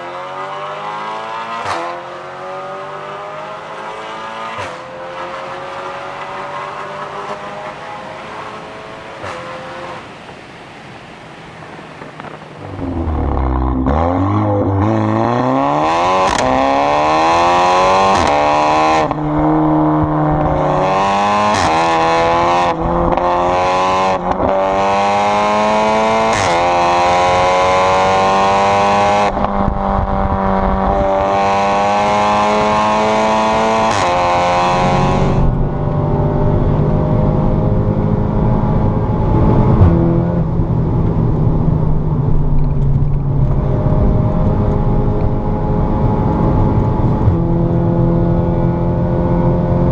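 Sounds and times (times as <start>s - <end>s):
car engine accelerating: 0.0s - 10.0s, 12.2s - 49.9s
exhaust cracks: 12.0s - 17.0s.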